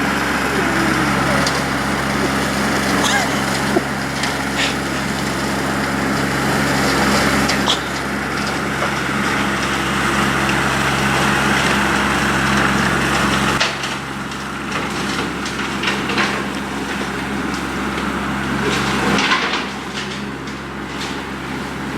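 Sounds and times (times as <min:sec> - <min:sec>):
low engine drone: 0:00.0 - 0:13.9.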